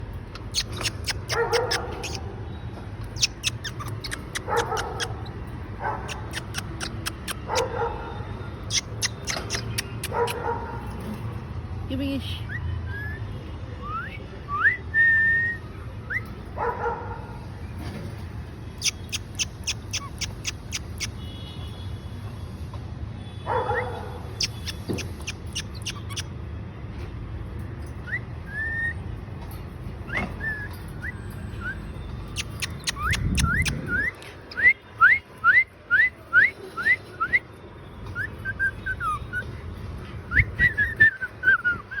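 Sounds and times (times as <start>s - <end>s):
cockatiel whistling chirps: 28.0s - 29.0s, 30.1s - 31.8s, 38.1s - 39.5s, 40.3s - 42.0s.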